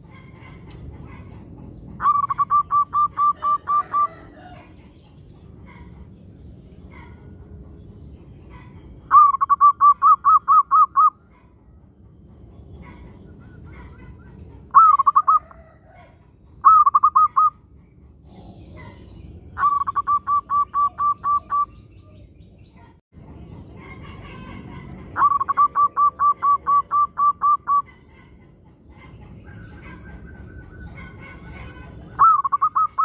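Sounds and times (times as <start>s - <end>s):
dove cooing: 0.0s - 4.8s, 8.6s - 11.5s, 12.8s - 17.6s, 19.6s - 22.2s, 23.9s - 28.4s, 29.4s - 33.0s.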